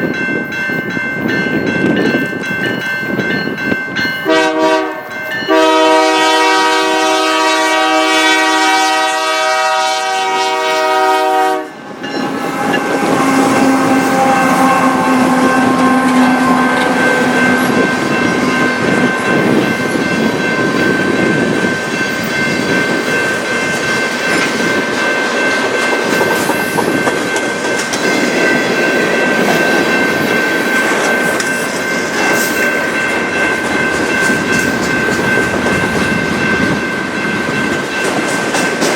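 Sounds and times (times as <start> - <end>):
locomotive horn: 4.3 - 19.1
train wheels clattering on rails: 11.9 - 38.9.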